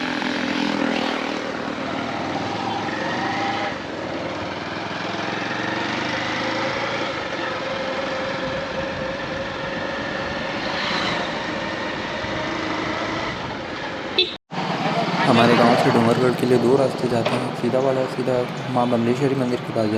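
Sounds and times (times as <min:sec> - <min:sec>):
motorcycle engine running: 0:00.0 - 0:10.7
road noise: 0:00.0 - 0:19.9.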